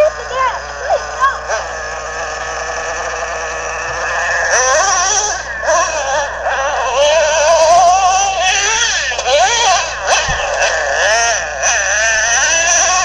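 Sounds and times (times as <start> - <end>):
rc truck engine revving: 0.0 - 13.0.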